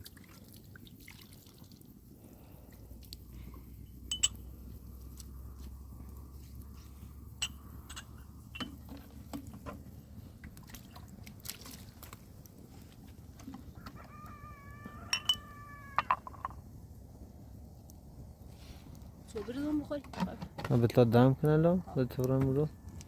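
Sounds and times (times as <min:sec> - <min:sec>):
chicken drawn-out call: 0:13.5 - 0:16.4.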